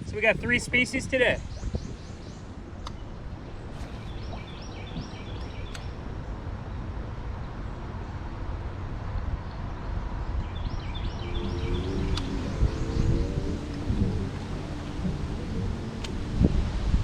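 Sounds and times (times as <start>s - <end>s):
steady low rumble: 0.0s - 17.0s
songbird singing high notes: 10.6s - 16.3s.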